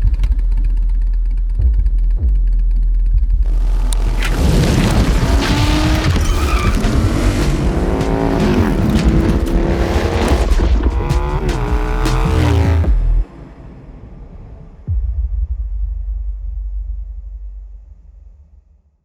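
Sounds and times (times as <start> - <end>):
motorcycle engine revving: 3.2 - 13.2.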